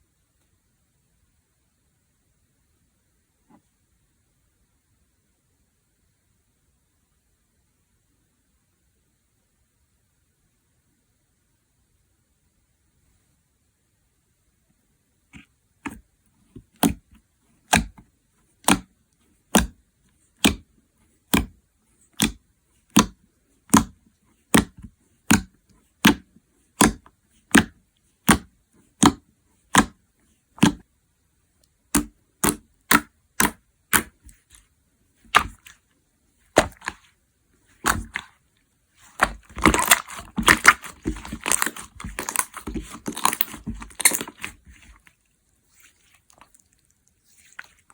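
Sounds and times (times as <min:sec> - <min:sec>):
slime popping and crackling: 0:36.6 - 0:37.1, 0:37.8 - 0:38.3, 0:39.0 - 0:45.1.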